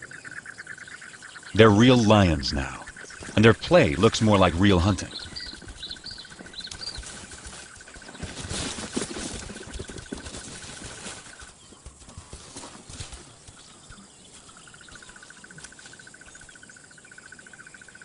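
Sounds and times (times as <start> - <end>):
thuds and scuffles: 6.7 - 11.4.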